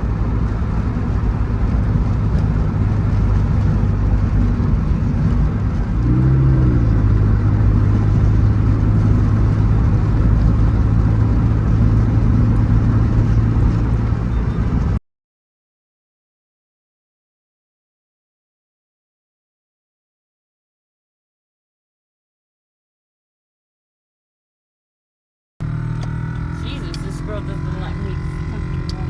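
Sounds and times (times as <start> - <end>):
car engine running: 0.0 - 15.0, 25.6 - 29.0
road noise: 0.0 - 15.0, 25.6 - 29.0.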